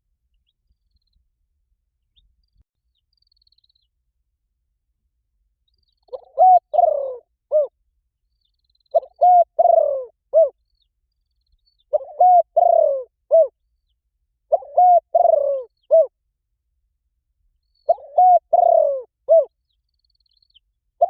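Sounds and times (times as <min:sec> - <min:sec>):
dove cooing: 0:06.1 - 0:07.7, 0:08.9 - 0:10.5, 0:11.9 - 0:13.5, 0:14.5 - 0:16.1, 0:17.9 - 0:19.5.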